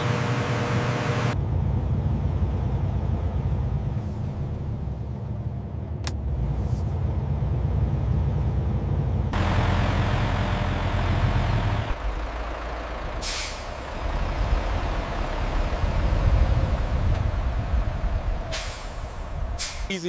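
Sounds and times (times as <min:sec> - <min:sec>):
truck engine rumbling: 0:00.0 - 0:20.0
air brake hiss: 0:13.2 - 0:13.8, 0:18.5 - 0:19.9
short hiss of air: 0:18.5 - 0:19.9.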